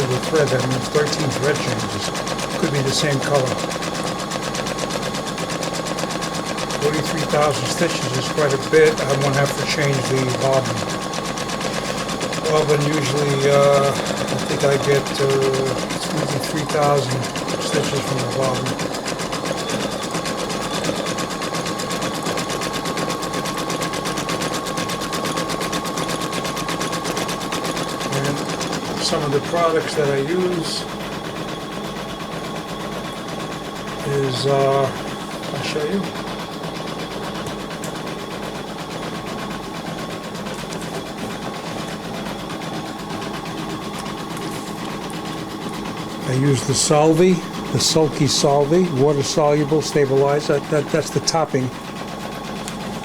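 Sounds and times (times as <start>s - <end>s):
embroidery machine stitching: 0.0s - 53.0s.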